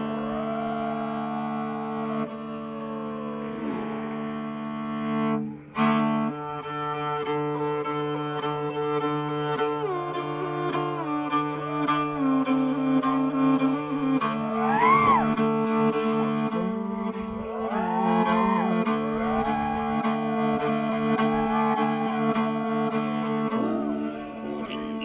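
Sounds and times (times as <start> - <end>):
drone music with sliding melody: 12.6 - 25.0.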